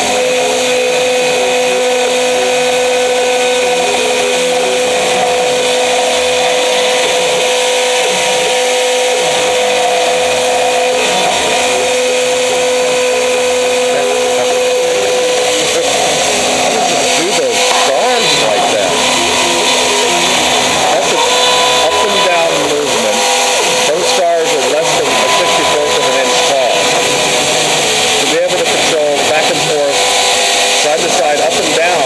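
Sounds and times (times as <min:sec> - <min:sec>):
router spindle whining: 0:00.0 - 0:32.0.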